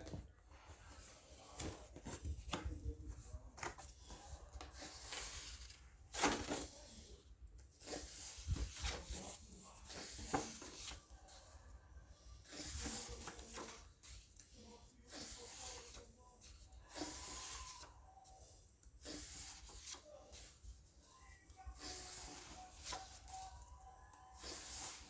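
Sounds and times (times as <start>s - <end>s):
book pages rustling: 0.0s - 11.5s, 12.5s - 18.0s, 18.9s - 25.0s.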